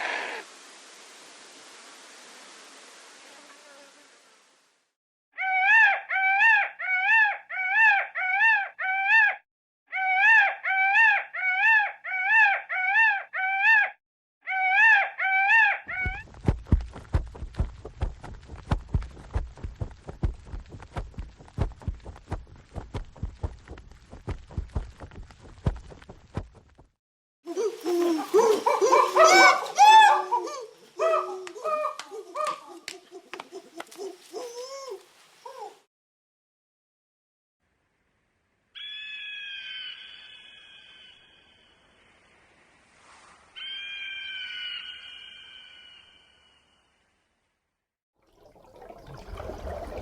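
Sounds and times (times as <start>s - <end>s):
animal cry rising and falling: 0.0s - 0.5s, 5.4s - 16.2s, 27.5s - 33.0s.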